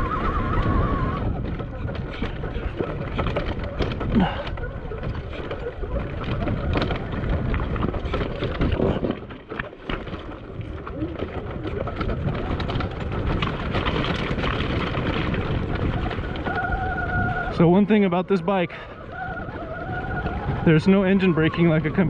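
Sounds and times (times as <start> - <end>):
bike knocking and rattling on rock: 0.0 - 22.0
wind buffeting microphone: 0.0 - 22.0.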